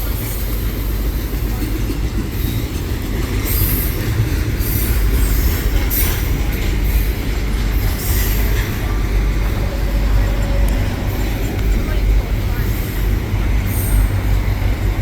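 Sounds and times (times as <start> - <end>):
train rumbling past: 0.0 - 15.0
train wheels squealing: 2.2 - 14.7.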